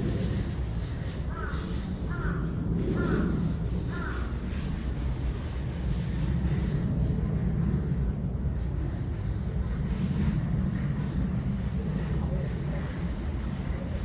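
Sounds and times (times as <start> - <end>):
low rumble: 0.0 - 14.0
small bird high-pitched calls: 1.3 - 3.3
crow cawing: 1.3 - 4.3.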